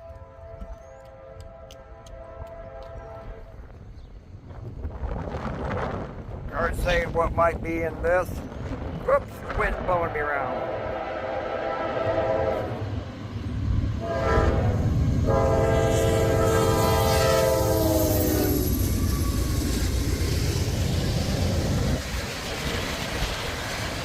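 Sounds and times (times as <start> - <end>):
locomotive air horn blasts: 0.0 - 3.6, 10.6 - 12.8, 14.0 - 18.7
train rumble and wheel clatter: 0.0 - 24.0.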